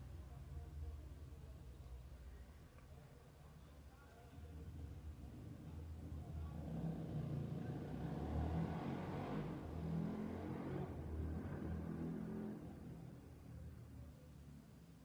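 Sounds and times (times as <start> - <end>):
motor vehicle passing by: 6.5 - 13.0.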